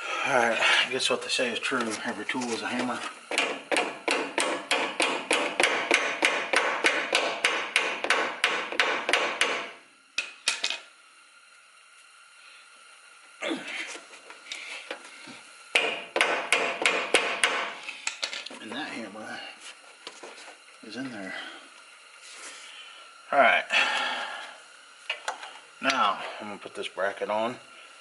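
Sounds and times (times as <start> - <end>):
rapid hammering on metal clip: 3.3 - 9.8, 15.7 - 17.7.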